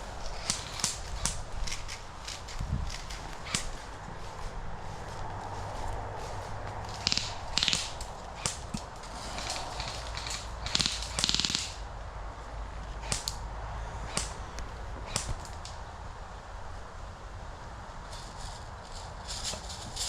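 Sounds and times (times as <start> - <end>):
airsoft guns firing: 0.2 - 3.9, 6.9 - 11.8, 13.0 - 13.4, 14.1 - 15.6.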